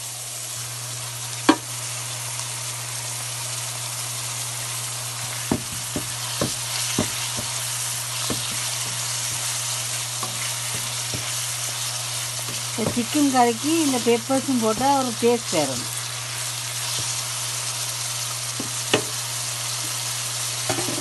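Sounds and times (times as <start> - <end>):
vegetables sizzling in oil: 0.0 - 21.0
spatula knocking against pan: 5.5 - 7.6, 8.2 - 9.5, 10.2 - 11.4, 12.5 - 13.2.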